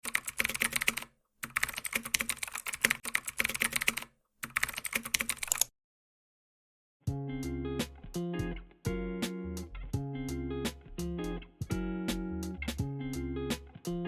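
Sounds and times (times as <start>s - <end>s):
rapid keyboard typing: 0.0s - 5.7s.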